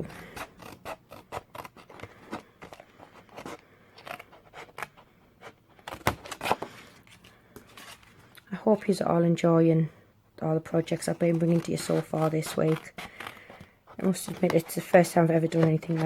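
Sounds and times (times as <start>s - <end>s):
scissors cutting cardstock: 11.1s - 16.0s.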